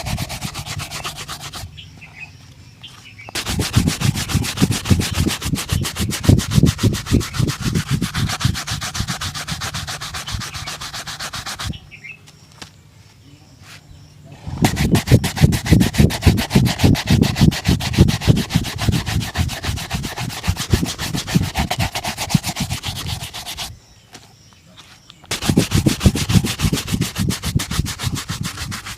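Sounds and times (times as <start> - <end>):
buffing strokes on leather shoe: 0.0 - 1.7, 3.3 - 11.8, 14.5 - 23.7, 25.3 - 28.9.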